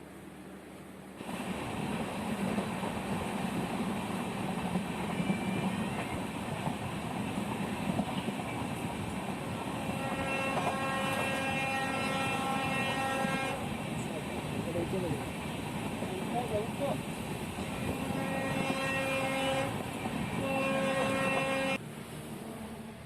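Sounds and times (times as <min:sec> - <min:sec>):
train rumbling: 0:00.0 - 0:23.0
train horn blast: 0:09.7 - 0:13.7, 0:17.6 - 0:23.0.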